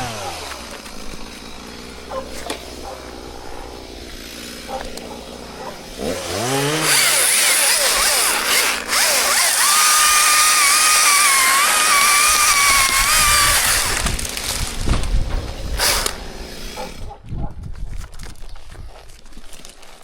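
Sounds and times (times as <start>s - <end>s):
chainsaw engine revving: 0.0s - 17.2s.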